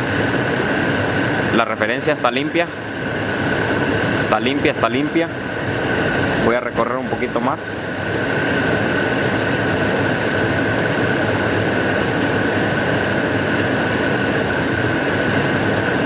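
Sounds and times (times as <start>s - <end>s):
truck engine running: 2.8s - 8.5s.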